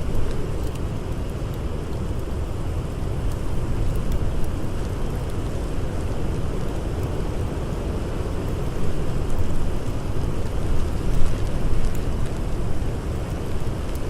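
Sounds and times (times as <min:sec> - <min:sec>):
blizzard wind rushing: 0:00.0 - 0:14.0
faint crackles: 0:00.0 - 0:14.0.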